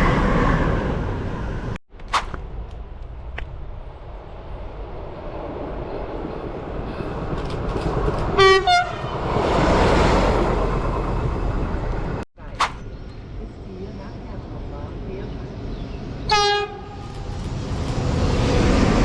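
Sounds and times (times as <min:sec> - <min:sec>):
train passing: 0:02.8 - 0:12.2, 0:13.2 - 0:19.0
train horn blasts: 0:08.4 - 0:09.1, 0:16.3 - 0:17.1.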